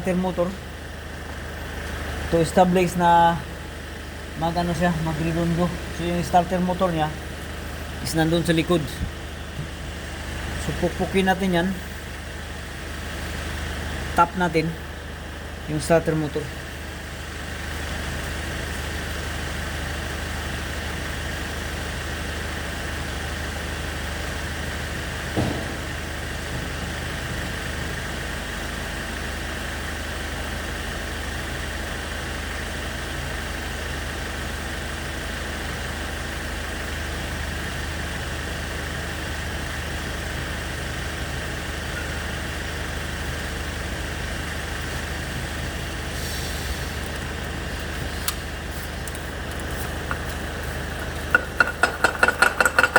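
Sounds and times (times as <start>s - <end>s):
car engine idling: 0.0s - 52.9s
sharp knock: 25.4s - 26.0s.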